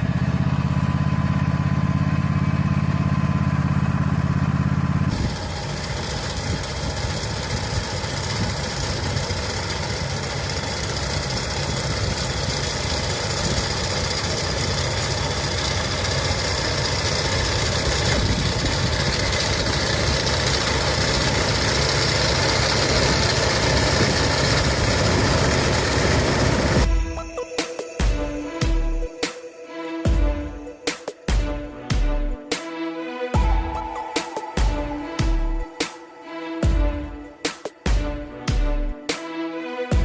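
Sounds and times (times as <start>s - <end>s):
hay baler machinery noise: 0.0s - 26.9s
tractor engine running: 0.0s - 27.3s, 33.4s - 39.2s.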